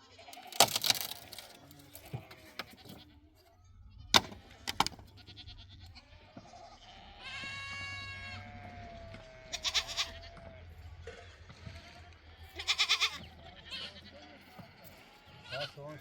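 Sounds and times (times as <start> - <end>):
sheep bleating: 0.0 - 0.6, 1.6 - 16.0
sharp clicks and knocks: 4.2 - 5.0.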